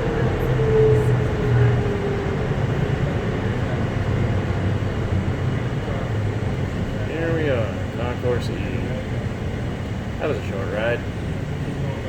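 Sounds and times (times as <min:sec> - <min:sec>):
tram motor whine: 0:00.0 - 0:12.0
tram running rumble: 0:00.0 - 0:12.0.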